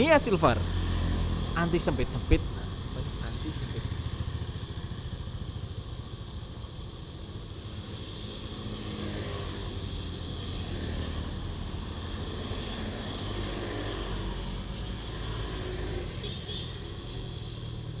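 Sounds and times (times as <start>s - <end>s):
motorcycle engine idling: 2.4s - 7.5s.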